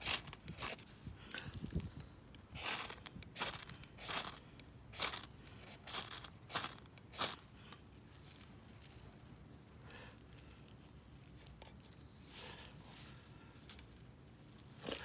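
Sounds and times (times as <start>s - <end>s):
knife scraping wood: 0.0s - 0.8s, 2.5s - 4.4s, 5.0s - 7.4s, 14.8s - 15.0s.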